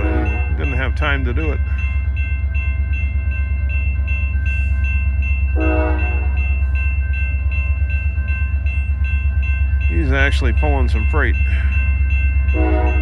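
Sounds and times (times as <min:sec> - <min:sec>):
train horn toot: 0:00.0 - 0:00.5, 0:05.6 - 0:06.4, 0:12.5 - 0:13.0
bell ringing: 0:00.0 - 0:13.0
diesel locomotive rumbling: 0:00.0 - 0:13.0.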